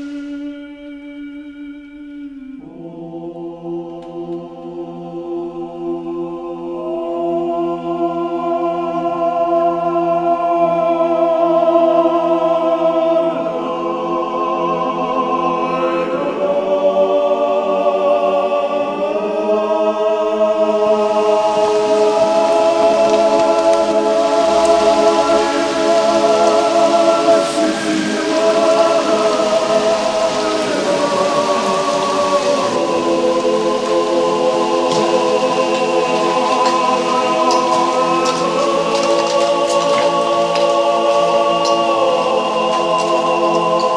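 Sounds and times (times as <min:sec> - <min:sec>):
hiss: 0:00.0 - 0:00.6, 0:20.6 - 0:43.9
slow sustained chords music: 0:20.8 - 0:39.4.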